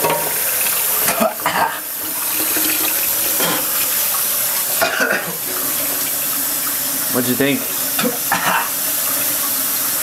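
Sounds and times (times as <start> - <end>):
water running: 0.0 - 10.0.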